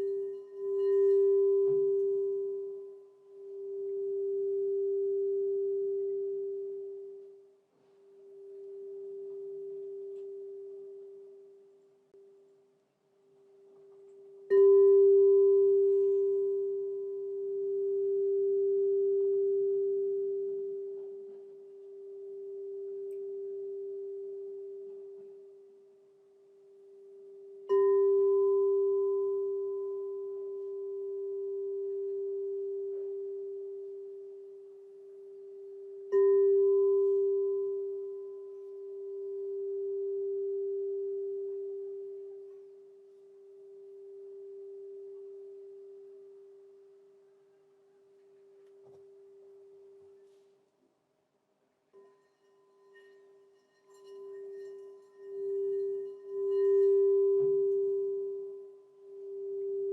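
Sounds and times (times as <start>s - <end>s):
crystal singing bowl ringing: 0.0s - 7.6s, 8.2s - 11.8s, 13.7s - 47.4s, 51.9s - 59.9s.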